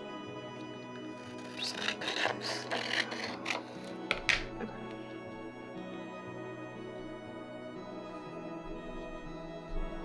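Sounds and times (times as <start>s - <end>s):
soft background music: 0.0s - 10.0s
pencil scratching on paper: 1.1s - 4.5s.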